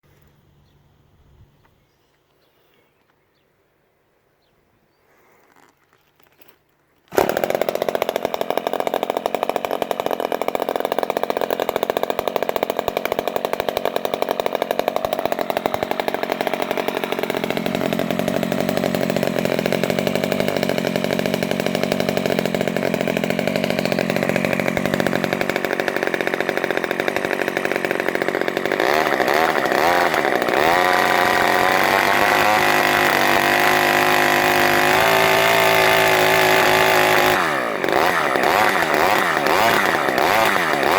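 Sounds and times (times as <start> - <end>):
model aircraft engine running: 14.2 - 40.9.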